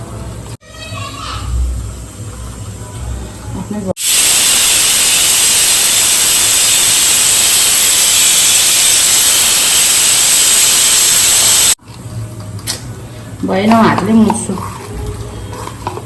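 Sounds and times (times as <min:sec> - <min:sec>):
loud steady hiss: 0:04.0 - 0:11.8.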